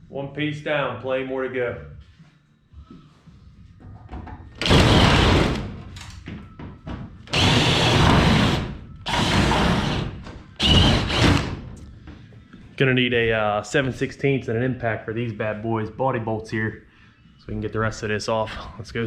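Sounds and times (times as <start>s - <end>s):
battery drill running: 7.3s - 11.4s.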